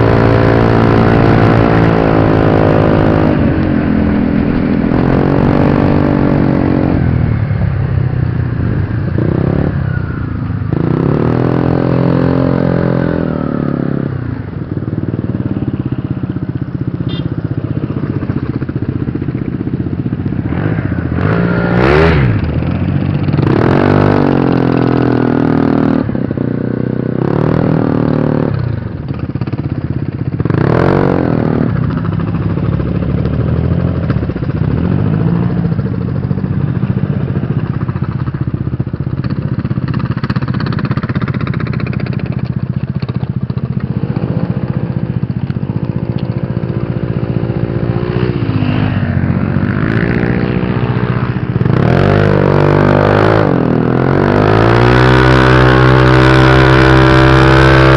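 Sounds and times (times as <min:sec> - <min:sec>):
scooter engine revving: 0:00.0 - 0:07.9, 0:30.4 - 0:57.9.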